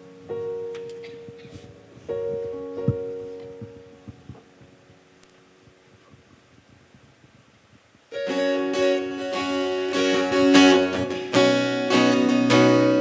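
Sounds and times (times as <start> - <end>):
acoustic guitar strumming chords: 8.1 - 13.0.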